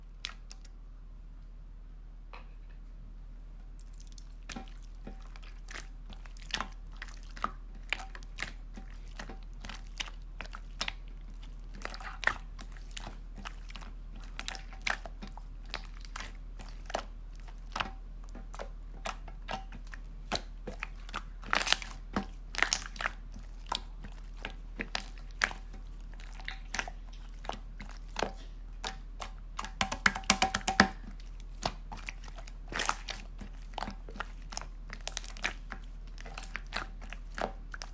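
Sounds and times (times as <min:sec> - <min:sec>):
slime clicking and popping: 0:29.6 - 0:31.0.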